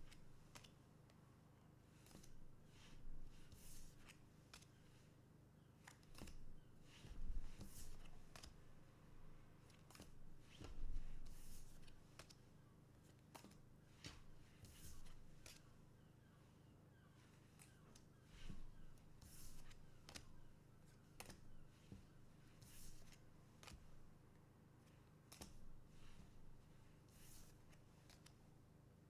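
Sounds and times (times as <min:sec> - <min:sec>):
cards sliding and clicking: 0:02.0 - 0:02.4, 0:09.7 - 0:12.4, 0:13.1 - 0:15.7, 0:22.6 - 0:23.8, 0:25.3 - 0:26.2, 0:27.1 - 0:28.4.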